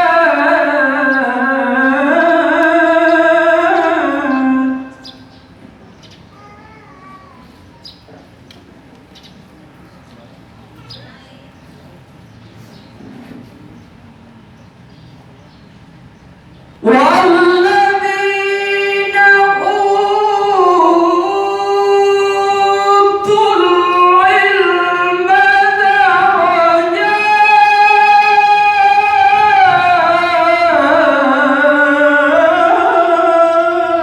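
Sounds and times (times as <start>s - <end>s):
solo voice reciting melodically: 0.0s - 5.5s, 16.8s - 34.0s.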